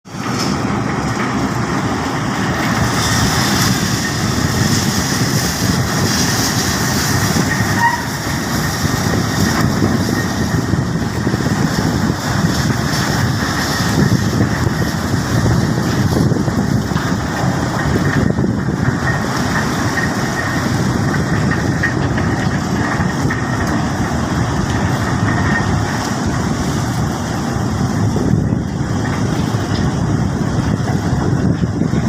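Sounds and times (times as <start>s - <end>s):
ship machinery rumble: 0.0s - 32.0s
machinery hiss: 0.1s - 21.4s.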